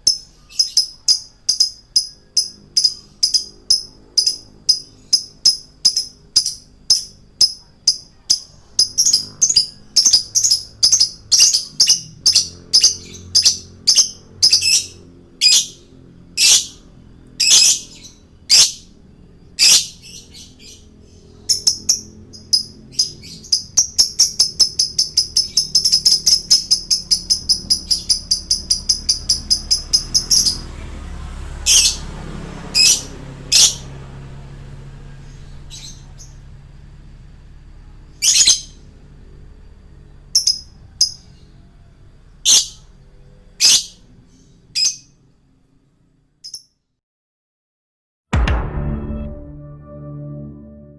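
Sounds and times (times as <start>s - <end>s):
lovebird chirping: 0.0s - 16.8s, 17.4s - 30.7s, 38.2s - 38.9s, 40.2s - 45.2s.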